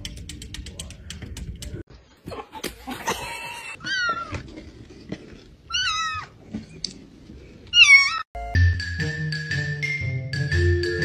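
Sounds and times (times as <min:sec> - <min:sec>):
kittens meowing: 0:05.7 - 0:06.3, 0:07.7 - 0:08.2.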